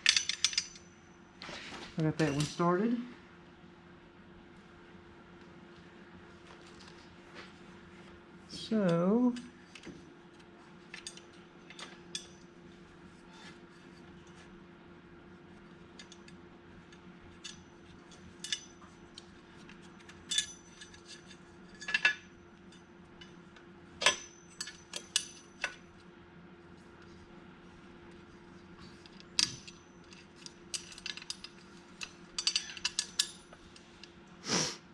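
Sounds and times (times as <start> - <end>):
metallic clinks of bolts and tools: 0.0 - 0.8, 17.4 - 19.2, 20.1 - 22.2, 24.0 - 25.8, 29.1 - 33.6
faint steady hum: 0.0 - 34.9.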